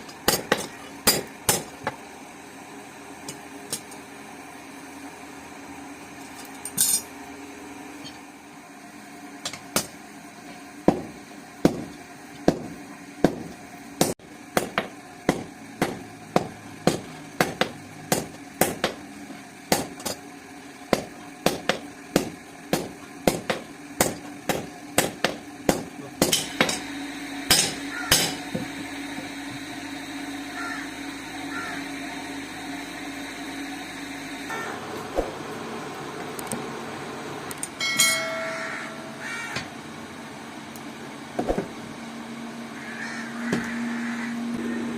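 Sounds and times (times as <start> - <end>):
hammer striking steel on anvil: 0.0 - 1.9, 10.9 - 19.0, 20.9 - 26.9, 27.5 - 28.7, 37.7 - 39.2
steady hum: 0.0 - 44.9.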